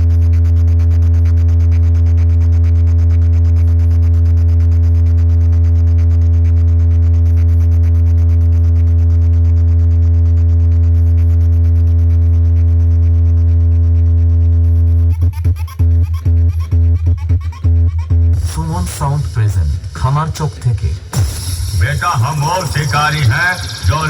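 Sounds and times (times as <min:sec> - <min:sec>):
deep bass drone: 0:00.0 - 0:24.0.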